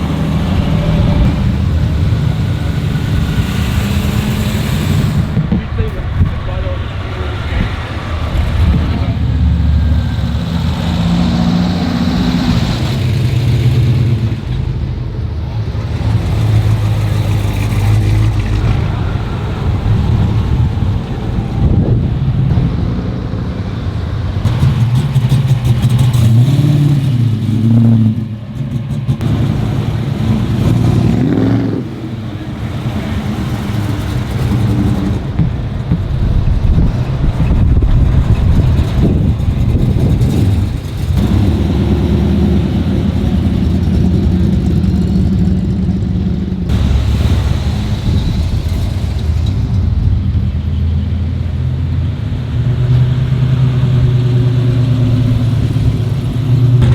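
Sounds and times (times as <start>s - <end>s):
car engines revving: 0.0s - 56.9s.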